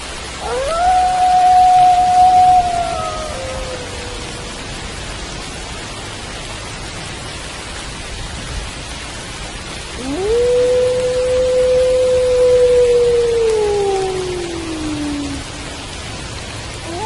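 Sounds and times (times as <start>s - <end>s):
rain falling: 0.0s - 17.0s
wolf howling: 0.4s - 4.8s, 10.0s - 15.8s.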